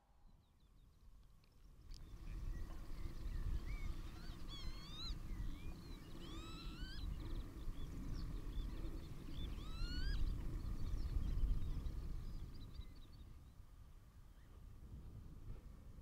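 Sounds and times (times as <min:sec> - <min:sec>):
whistled bird calls: 0:02.5 - 0:07.4, 0:08.2 - 0:10.4.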